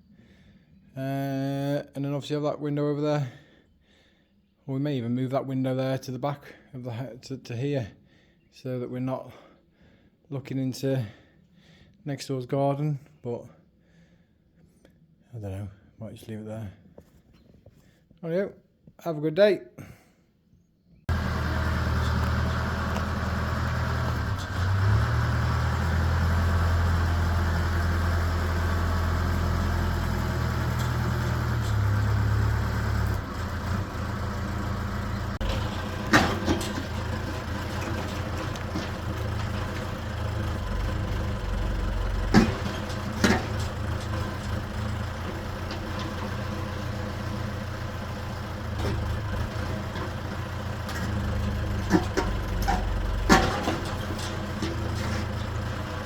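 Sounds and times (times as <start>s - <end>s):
excavator diesel engine running: 21.1s - 56.0s.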